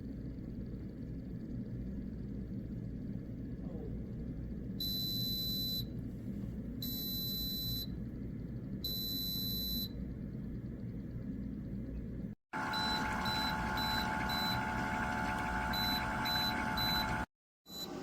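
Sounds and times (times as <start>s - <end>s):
steady low hum: 0.0s - 17.3s
coffee maker electronic beeps: 12.6s - 18.0s.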